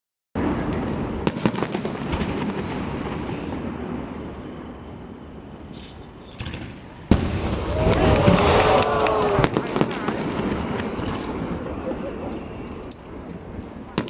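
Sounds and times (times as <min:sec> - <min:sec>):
firework crackling pops: 0:00.4 - 0:04.0, 0:05.7 - 0:11.6
rumble of firework booms: 0:07.1 - 0:08.5.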